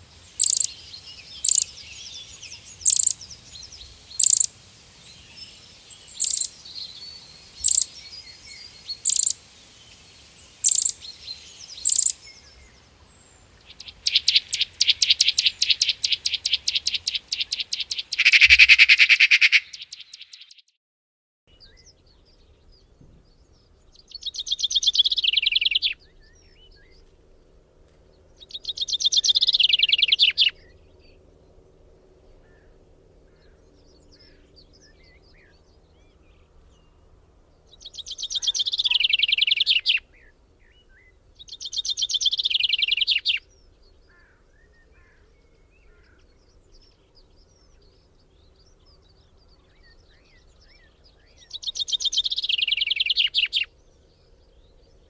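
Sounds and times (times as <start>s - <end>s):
songbird trilling: 0.4s - 4.5s, 5.2s - 9.4s, 10.6s - 12.7s, 13.6s - 20.6s, 23.3s - 27.0s, 28.4s - 31.2s, 37.7s - 53.7s
faint bird chirps: 0.4s - 10.0s, 10.6s - 20.7s, 21.5s - 27.1s, 28.3s - 31.2s, 37.6s - 55.0s.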